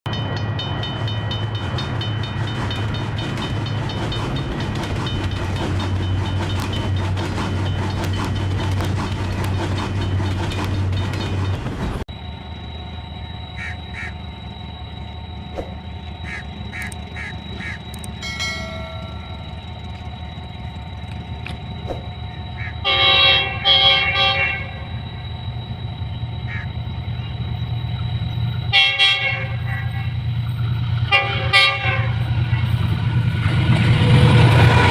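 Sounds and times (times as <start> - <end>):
express train passing: 0.1 - 34.9
steady whine: 0.1 - 34.9
locomotive horn blasts: 22.6 - 24.9, 28.6 - 30.3, 31.0 - 32.7.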